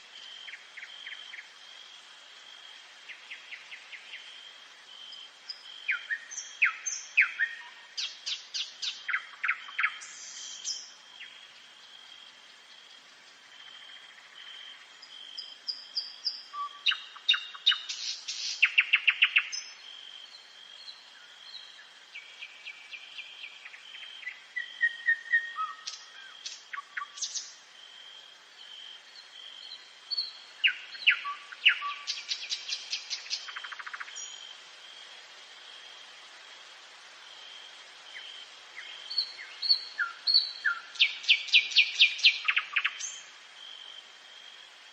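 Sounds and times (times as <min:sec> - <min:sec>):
nightingale singing: 0:05.0 - 0:12.7, 0:13.7 - 0:34.5, 0:38.1 - 0:43.9.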